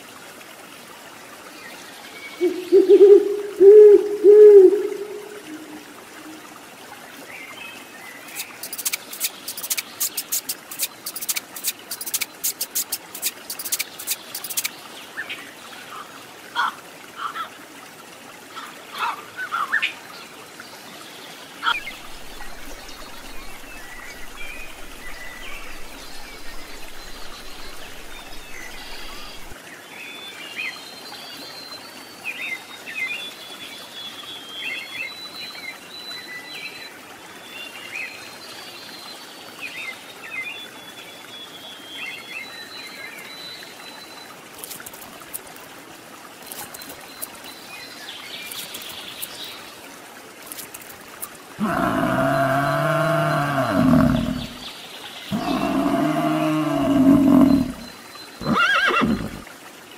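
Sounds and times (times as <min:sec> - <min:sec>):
trickle of running water: 0:00.0 - 0:59.9
birds chirping and calling: 0:08.3 - 0:14.7, 0:55.3 - 0:59.3
fast sharp clicks: 0:08.3 - 0:14.7.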